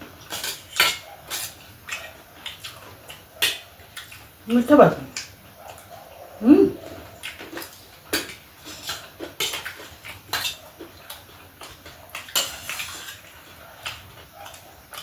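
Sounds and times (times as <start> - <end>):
cutlery clinking against a dish: 0.3 - 4.2, 7.3 - 15.0.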